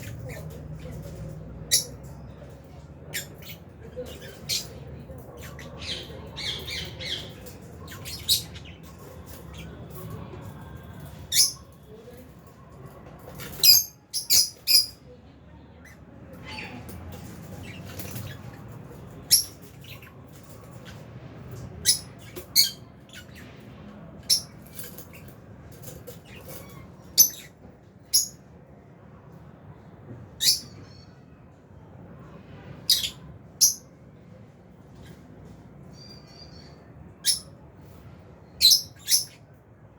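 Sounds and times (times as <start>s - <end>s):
low background noise: 0.0s - 39.9s
lovebirds shrill chirps: 5.4s - 10.0s, 11.1s - 11.7s, 13.4s - 15.0s, 19.2s - 20.2s, 21.8s - 23.5s, 26.1s - 28.4s, 32.9s - 33.9s, 35.9s - 37.6s, 38.6s - 39.4s.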